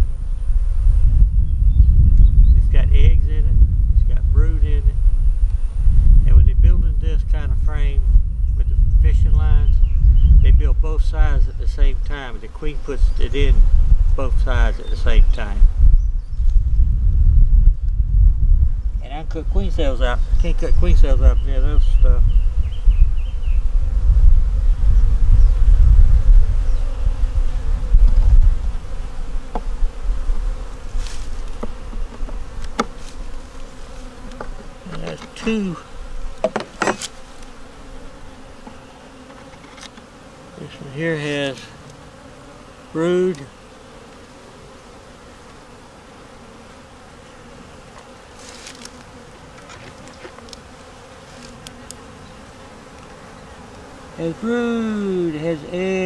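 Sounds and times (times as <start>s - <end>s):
low rumble: 0.0s - 10.9s, 15.7s - 19.1s
honey bees buzzing: 7.2s - 16.5s, 18.6s - 56.0s
hive tool scraping: 24.4s - 54.6s.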